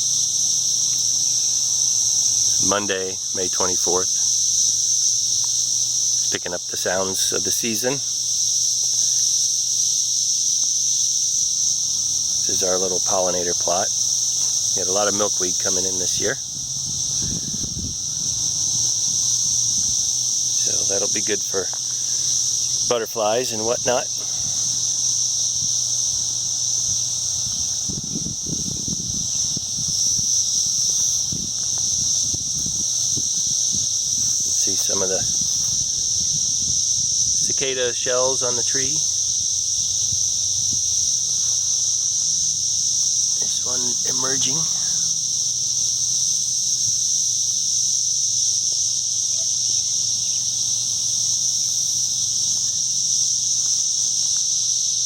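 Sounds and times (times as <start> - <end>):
cicadas buzzing: 0.0 - 55.0
low rumble on microphone: 14.4 - 21.2, 24.1 - 37.4.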